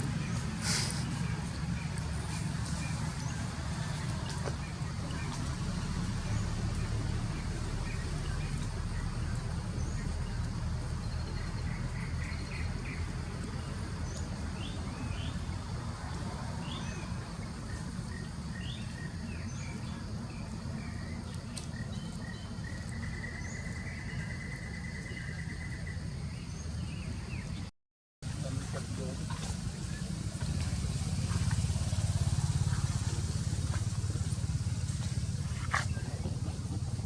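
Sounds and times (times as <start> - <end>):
steady low rumble: 28.3 - 37.0.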